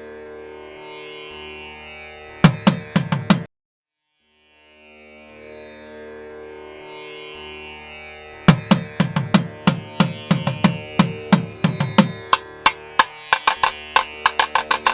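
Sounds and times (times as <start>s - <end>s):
hand drum strokes: 8.5s - 14.9s.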